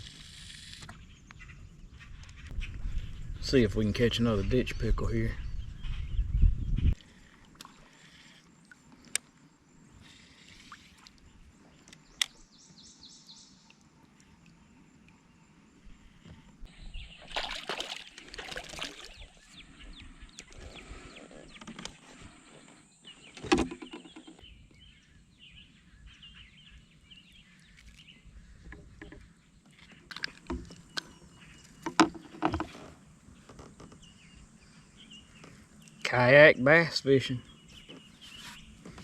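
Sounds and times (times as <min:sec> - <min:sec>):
water sounds: 0:07.0 - 0:12.3, 0:13.4 - 0:22.3.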